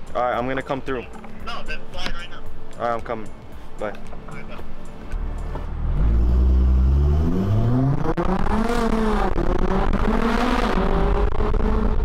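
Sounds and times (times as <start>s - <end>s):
car engine accelerating hard: 5.3s - 12.0s.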